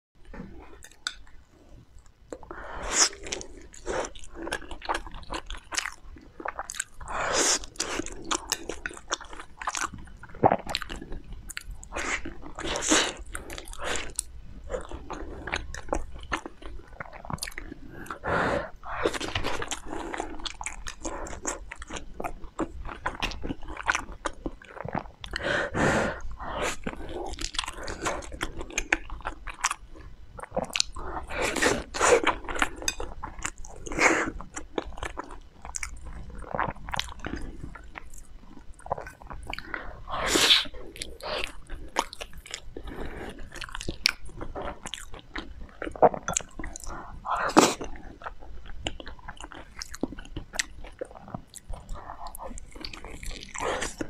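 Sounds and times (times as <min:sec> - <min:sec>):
chewing sticky rice balls: 0:00.2 - 0:54.0.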